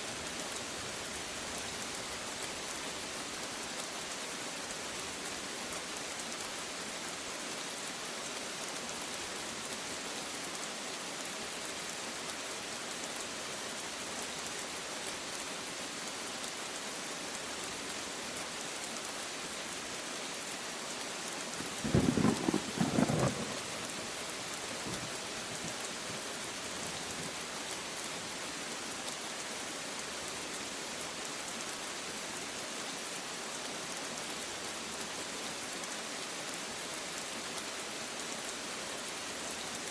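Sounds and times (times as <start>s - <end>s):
steady rain falling: 0.0s - 39.9s
thunder clap: 21.8s - 23.9s.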